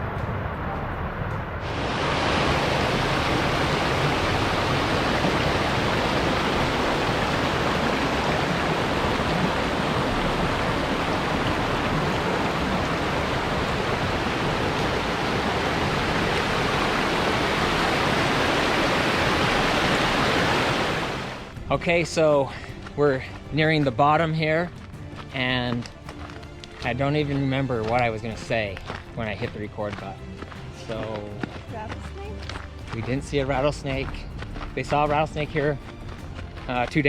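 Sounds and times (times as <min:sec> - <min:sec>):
waterfall rushing: 0:01.6 - 0:22.4.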